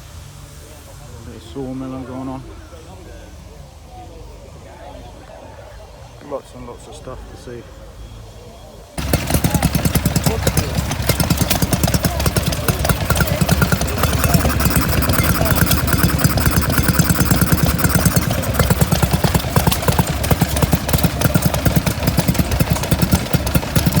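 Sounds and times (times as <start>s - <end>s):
engine running steadily: 9.0s - 24.0s.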